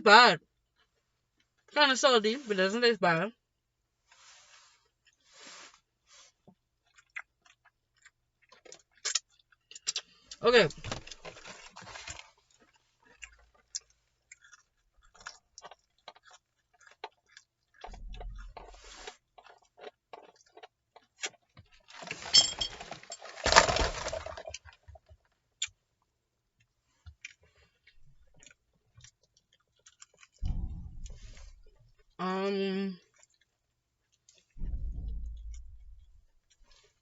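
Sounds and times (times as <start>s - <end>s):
chewing crispy fried chicken: 4.0s - 22.2s, 23.6s - 31.4s, 33.0s - 34.6s.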